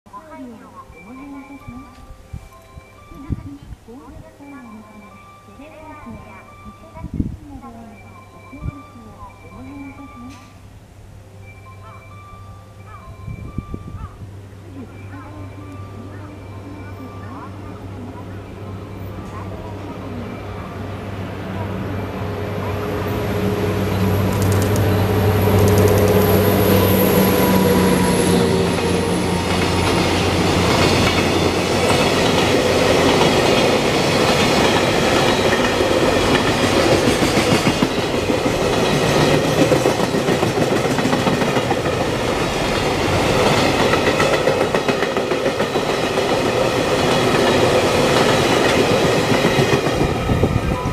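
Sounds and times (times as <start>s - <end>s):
locomotive engine running: 14.4s - 50.9s
train wheels clattering on rails: 24.0s - 50.9s.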